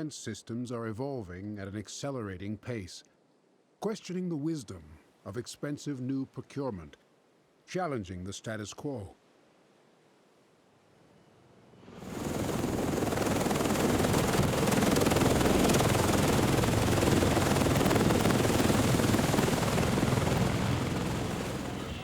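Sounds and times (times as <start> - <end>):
loud aircraft noise: 12.0 - 22.0.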